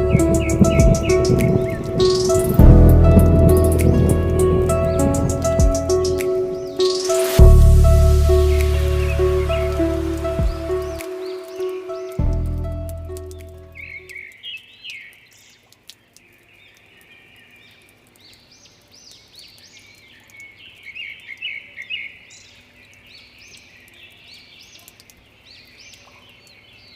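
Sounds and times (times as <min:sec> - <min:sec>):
low musical note: 0:00.0 - 0:13.8
birds chirping: 0:00.0 - 0:21.6.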